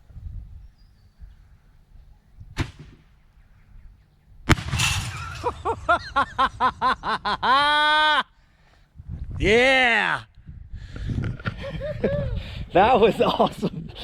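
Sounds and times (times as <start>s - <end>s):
firework sharp pop: 2.6s - 3.1s, 4.5s - 5.4s
firework blast with crackling tail: 4.5s - 5.9s.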